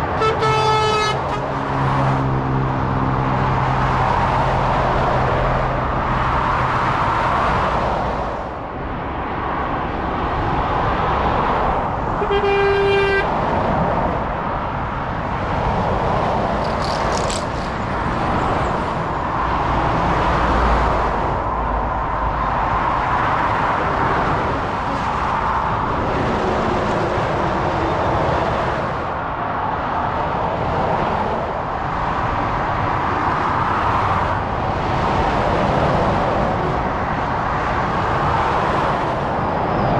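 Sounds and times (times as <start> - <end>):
vehicle horn: 0.0 - 1.7, 12.2 - 13.3
motorway traffic: 0.0 - 39.9.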